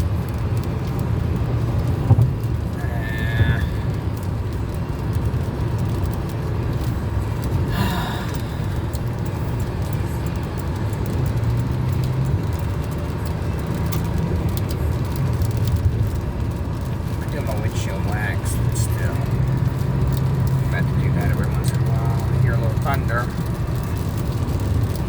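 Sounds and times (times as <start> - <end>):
rain ticking on car: 0.0 - 25.0
road and engine rumble: 0.0 - 25.0.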